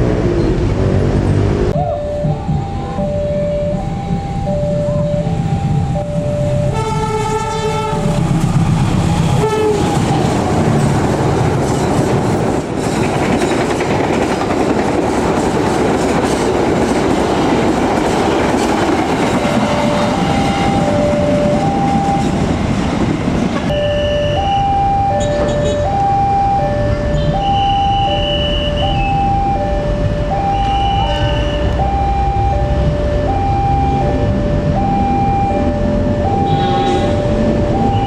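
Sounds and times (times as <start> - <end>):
train passing with rumble: 0.0 - 38.0
two-tone crossing alarm: 1.8 - 11.1, 15.4 - 38.0
locomotive horn: 6.6 - 10.7, 19.2 - 22.3, 23.6 - 29.6, 30.4 - 32.5, 34.9 - 38.0
wheels clacking over rail joints: 8.0 - 23.7.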